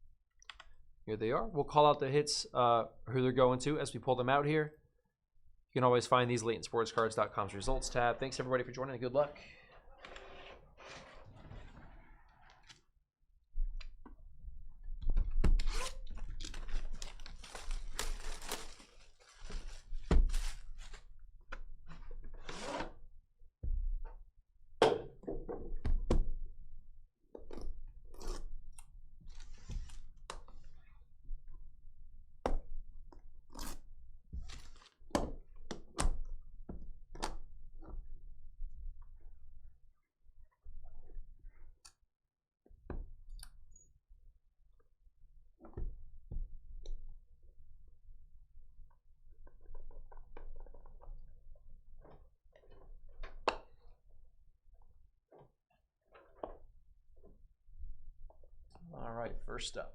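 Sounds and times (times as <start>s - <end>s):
rustling and crinkling: 16.2s - 21.1s, 34.4s - 35.1s.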